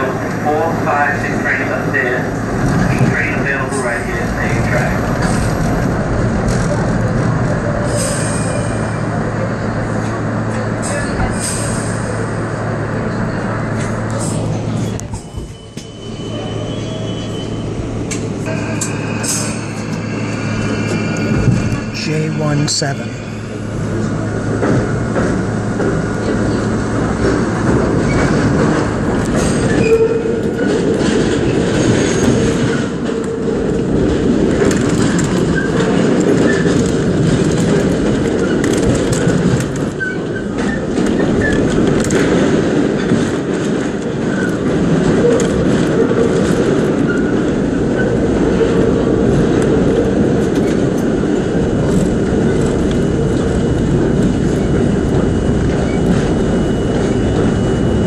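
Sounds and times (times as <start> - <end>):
train rail rumble: 0.0 - 58.0
wheel squeal: 14.8 - 17.8.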